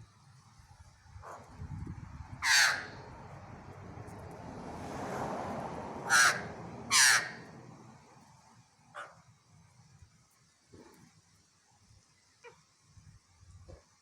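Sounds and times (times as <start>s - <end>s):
crow cawing: 2.4s - 3.0s, 6.0s - 7.5s.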